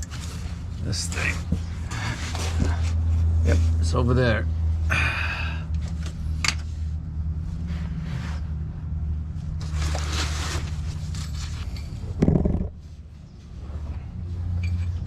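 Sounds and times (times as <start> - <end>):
tools scraping and rustling: 0.0 - 3.8, 9.4 - 15.0
steady low hum: 0.0 - 15.0.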